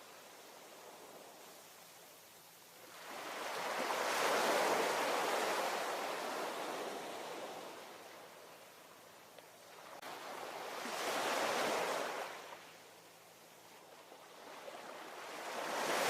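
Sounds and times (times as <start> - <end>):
ocean wave washing: 14.8 - 16.0.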